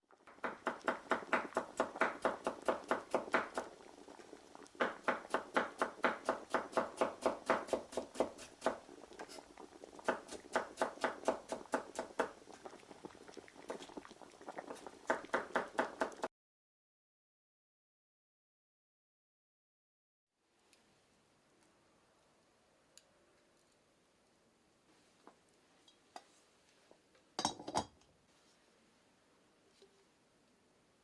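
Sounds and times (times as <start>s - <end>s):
knife chopping on wooden board: 4.8s - 8.8s, 10.1s - 12.3s.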